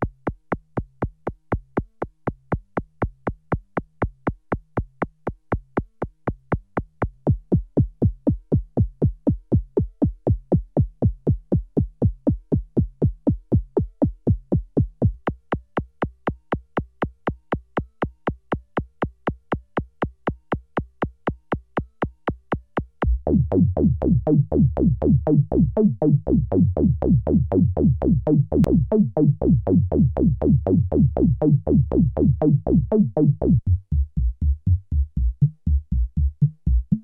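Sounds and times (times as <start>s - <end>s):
synthesizer sequence of clicky notes: 23.0s - 37.0s.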